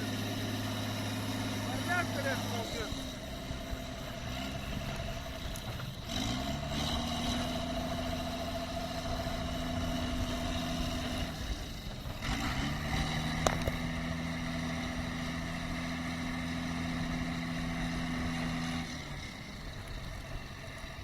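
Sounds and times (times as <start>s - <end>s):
tractor engine under load: 0.0s - 21.0s.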